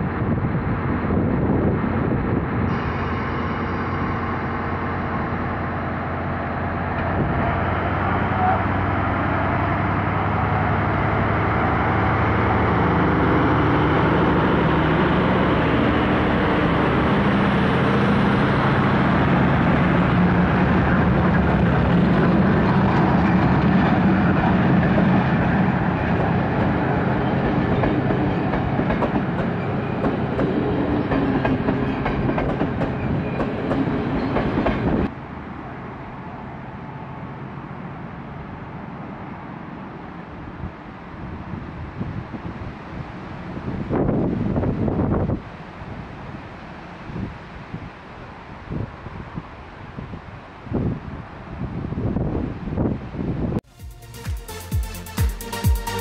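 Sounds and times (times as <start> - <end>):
diesel train engine: 0.0 - 41.2.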